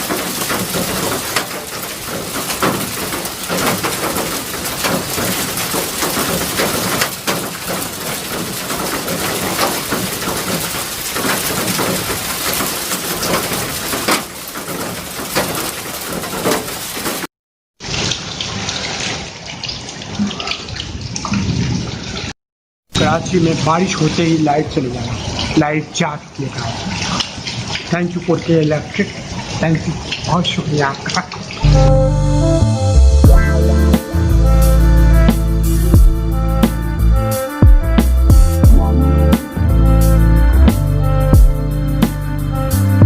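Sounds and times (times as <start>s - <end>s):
quieter duller rain: 0.0s - 18.7s, 32.5s - 43.0s
heavy rain pouring: 0.0s - 19.1s, 32.5s - 43.0s.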